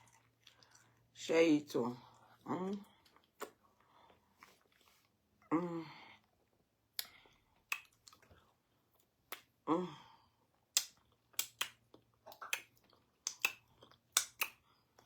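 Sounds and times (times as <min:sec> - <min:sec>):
wet mouth chewing sounds: 0:00.0 - 0:01.0, 0:02.1 - 0:05.1, 0:06.4 - 0:09.5, 0:10.7 - 0:15.0.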